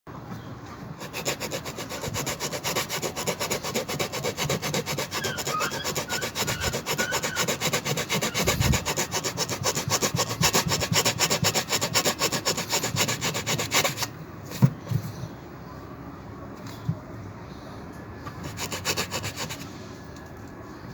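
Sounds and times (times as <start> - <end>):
rasping strokes on a tyre: 1.0 - 14.1.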